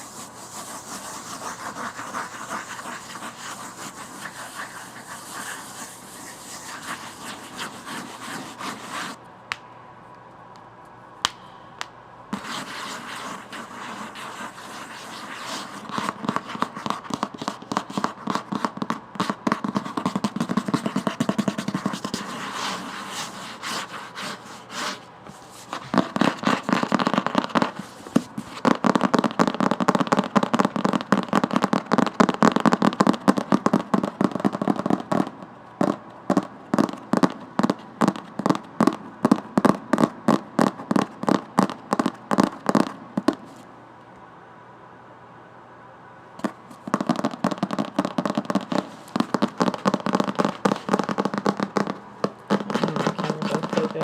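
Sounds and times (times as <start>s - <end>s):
tapping and scratching on book: 0.0s - 9.2s, 12.4s - 29.2s, 52.6s - 54.0s.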